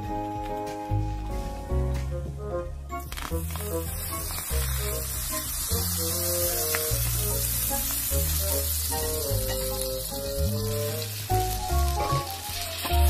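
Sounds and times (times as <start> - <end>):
background music: 0.0 - 13.0
toast frying with sizzle: 3.0 - 13.0.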